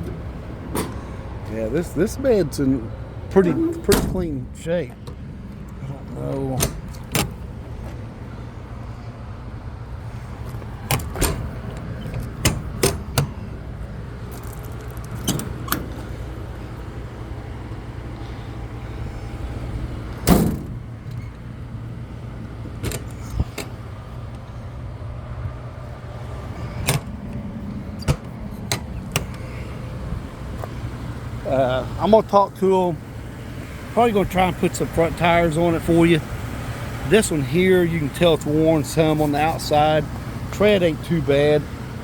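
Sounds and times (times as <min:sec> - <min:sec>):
truck engine idling: 0:00.0 - 0:42.0.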